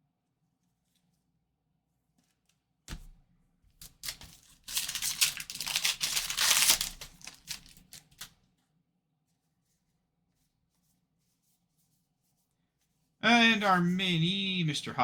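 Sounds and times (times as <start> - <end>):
foil wrapper tearing and crinkling: 3.8 - 8.4.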